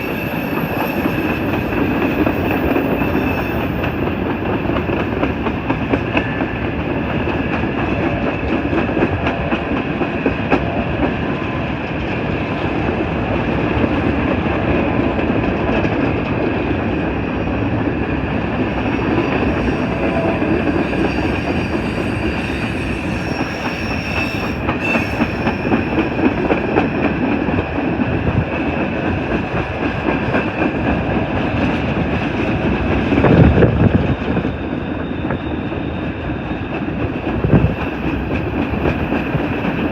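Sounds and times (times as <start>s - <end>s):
freight train wheels clattering: 0.0s - 35.4s
high ringing tone: 16.6s - 27.7s.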